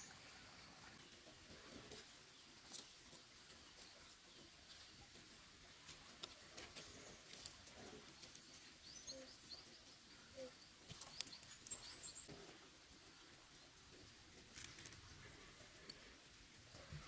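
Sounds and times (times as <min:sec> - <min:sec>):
faint bird chirps: 0:08.2 - 0:12.3.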